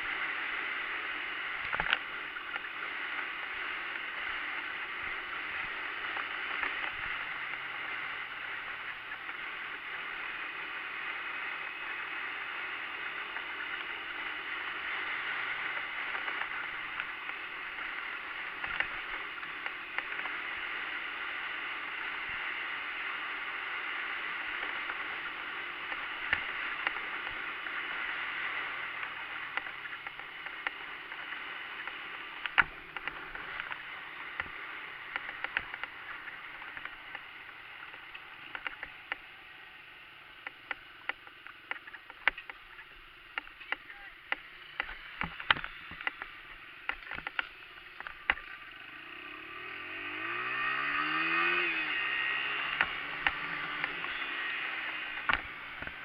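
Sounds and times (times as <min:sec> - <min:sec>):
sharp clicks and knocks: 0:31.8 - 0:39.3, 0:40.4 - 0:48.6, 0:52.7 - 0:54.2, 0:55.1 - 0:56.0
dirt bike engine revving: 0:48.0 - 0:56.0.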